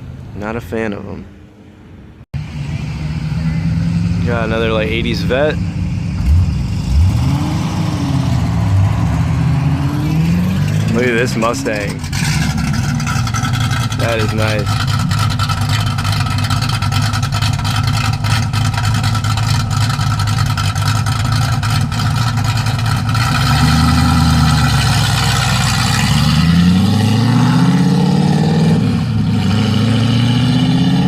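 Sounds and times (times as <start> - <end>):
car engine rumbling and accelerating: 0.0 - 31.0.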